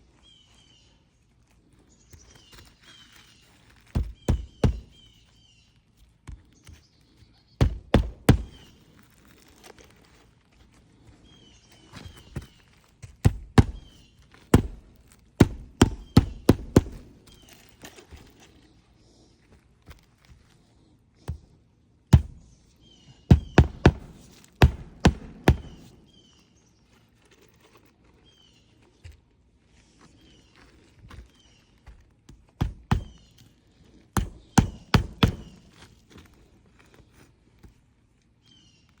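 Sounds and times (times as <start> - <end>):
faint bird chirps: 0.0 - 7.6
birds chirping: 0.0 - 39.0
sharp thunks: 13.2 - 17.1, 22.1 - 22.5, 23.3 - 26.0, 32.6 - 33.3, 34.2 - 35.8
hammer blows: 23.3 - 26.0.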